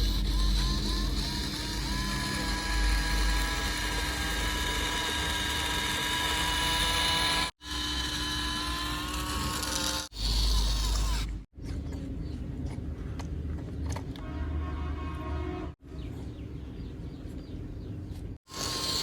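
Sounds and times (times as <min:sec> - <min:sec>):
small electric motor whining: 0:00.0 - 0:11.5, 0:18.5 - 0:19.0.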